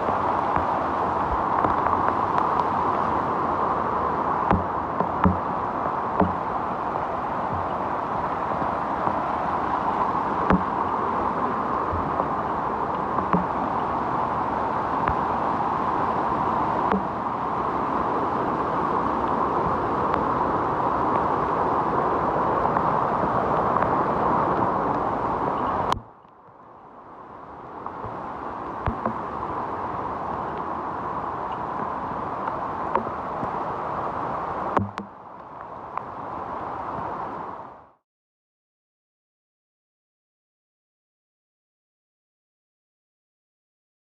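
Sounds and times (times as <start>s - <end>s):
stream water rushing: 0.0s - 38.0s
dull knocks: 4.5s - 5.4s, 6.2s - 6.4s, 10.5s - 10.8s, 34.8s - 35.1s.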